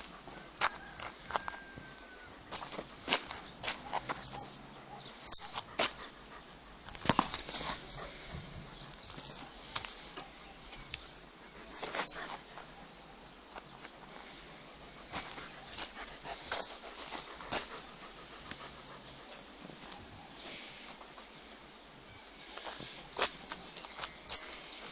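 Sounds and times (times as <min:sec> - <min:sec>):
rustling: 0:05.4 - 0:12.9.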